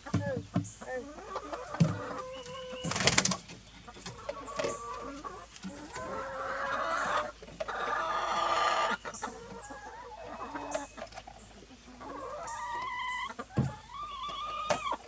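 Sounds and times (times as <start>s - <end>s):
chickens clucking: 0.0s - 15.0s
longer chicken calls: 0.0s - 15.0s.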